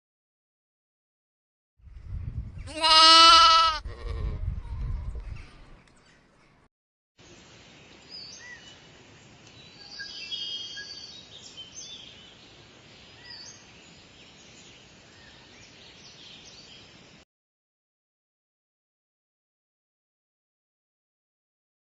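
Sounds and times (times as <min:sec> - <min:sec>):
background hiss: 0:07.2 - 0:17.2
small birds chirping and whistling: 0:09.5 - 0:12.4.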